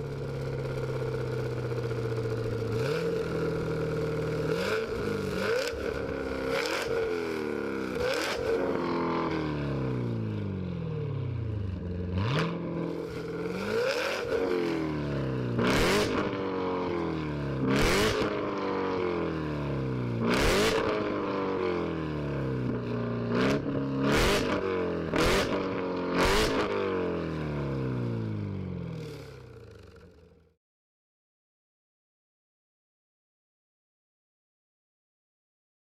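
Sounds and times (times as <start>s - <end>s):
car engine revving: 2.3s - 9.9s, 11.7s - 16.5s, 17.6s - 18.5s, 20.2s - 21.2s, 23.3s - 26.8s.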